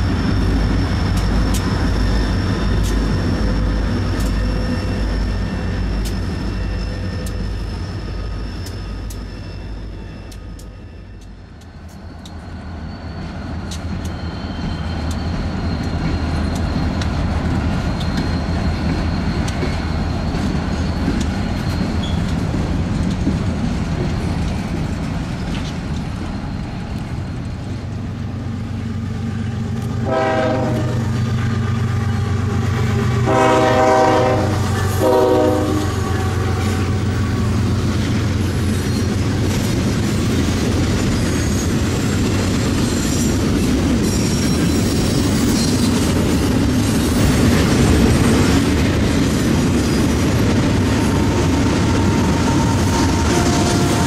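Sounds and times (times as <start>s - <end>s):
diesel locomotives rumbling: 0.0s - 54.0s
locomotive horn blasts: 30.0s - 31.2s, 33.2s - 37.4s, 52.0s - 54.0s.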